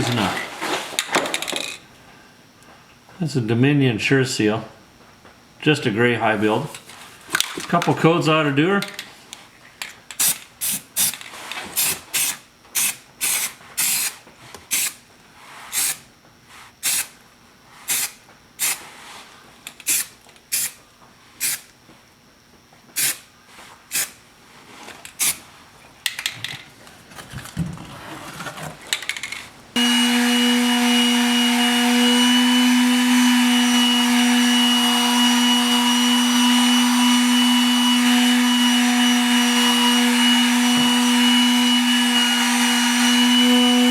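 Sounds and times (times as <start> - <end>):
spray gun hissing: 15.7 - 16.0
loud steady motor hum: 29.8 - 43.9.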